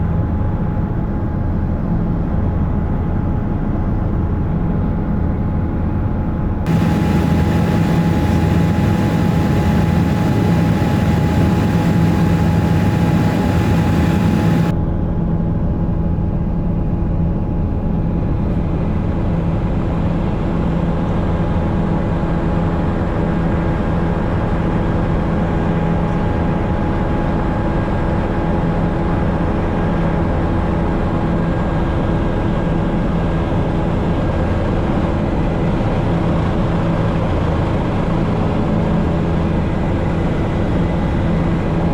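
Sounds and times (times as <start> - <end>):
helicopter engine and rotor: 6.7 - 14.7.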